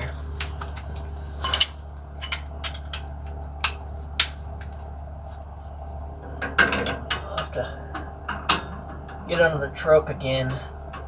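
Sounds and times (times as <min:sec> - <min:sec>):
metal tools clinking: 0:00.0 - 0:04.4
steady low hum: 0:00.0 - 0:11.0.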